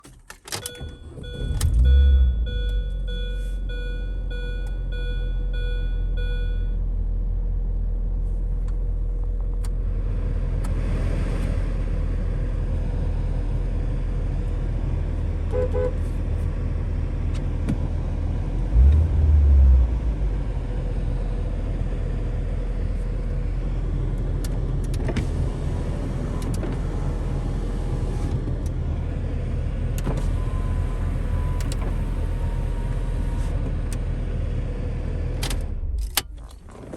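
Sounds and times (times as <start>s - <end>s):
car engine starting and idling: 0.0s - 36.9s
repeating beep: 0.8s - 6.7s.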